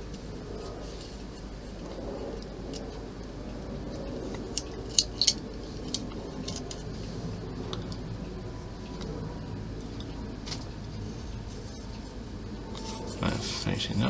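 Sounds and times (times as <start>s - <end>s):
steady low hum: 0.0s - 14.0s
plastic parts clicking and tapping: 4.3s - 6.9s.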